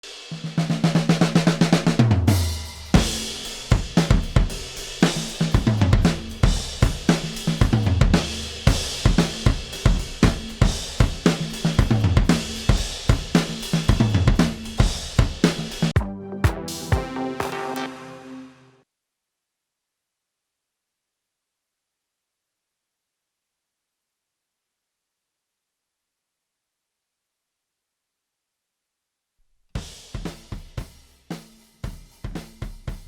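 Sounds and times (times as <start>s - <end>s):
drum kit beat: 0.0s - 18.6s, 29.8s - 33.0s.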